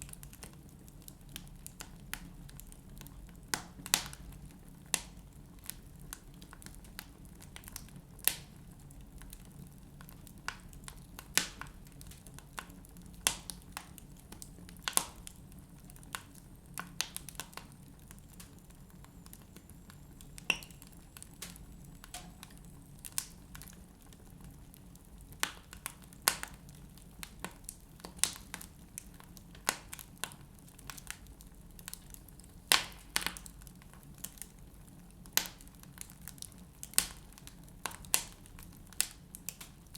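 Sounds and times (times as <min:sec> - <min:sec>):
wood fire crackling and popping: 0:00.0 - 0:39.9
low steady hum: 0:14.1 - 0:28.0.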